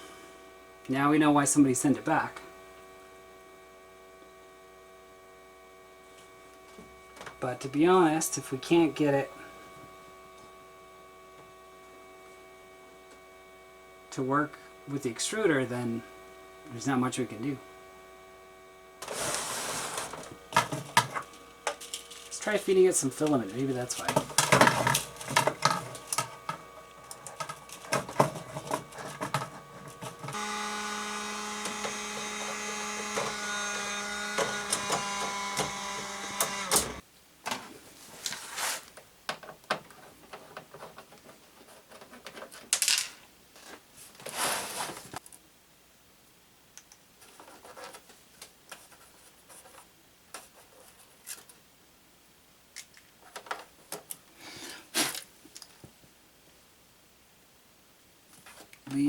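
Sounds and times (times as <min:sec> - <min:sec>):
fan hum: 0:00.0 - 0:37.0
printer motor whine: 0:17.6 - 0:37.0
handling clicks and knocks: 0:20.0 - 0:22.5, 0:23.2 - 0:30.4.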